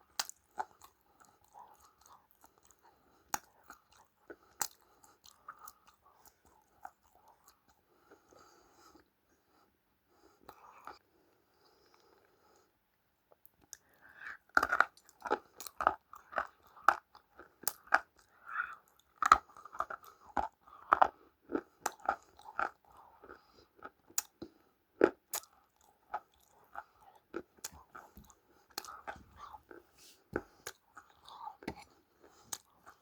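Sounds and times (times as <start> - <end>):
crunchy food crunching: 14.5 - 29.8.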